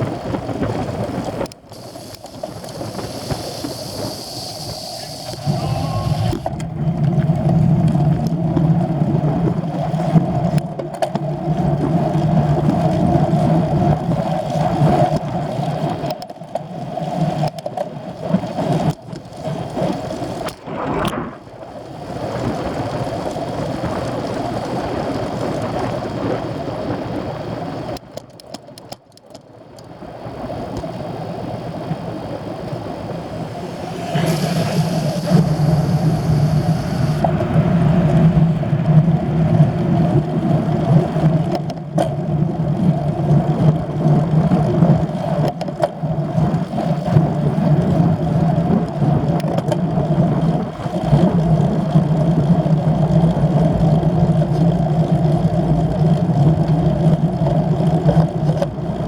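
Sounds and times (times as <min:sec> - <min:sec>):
engine droning: 0:31.6 - 0:39.8.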